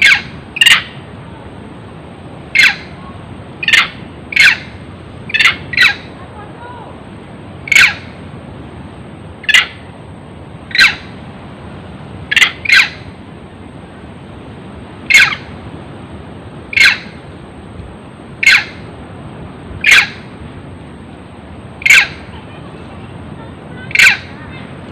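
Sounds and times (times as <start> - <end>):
animal squawking calls: 0.0 - 1.0, 2.5 - 3.0, 3.6 - 6.2, 7.6 - 8.2, 9.4 - 9.8, 10.7 - 11.1, 12.3 - 13.1, 15.1 - 15.5, 16.7 - 17.2, 18.4 - 18.8, 19.8 - 20.3, 21.8 - 22.3, 23.8 - 24.5
background hiss: 0.0 - 24.9.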